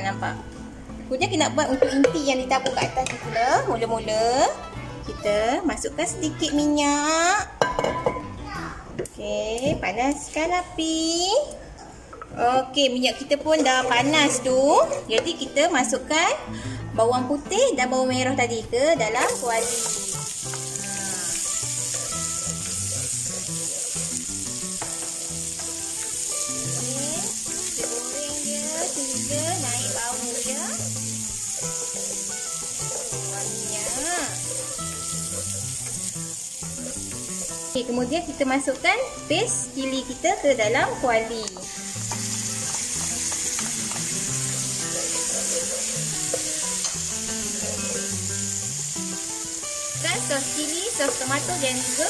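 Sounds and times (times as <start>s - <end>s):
soft background music: 0.0s - 52.0s
onion frying in oil: 19.1s - 40.3s, 41.3s - 52.0s.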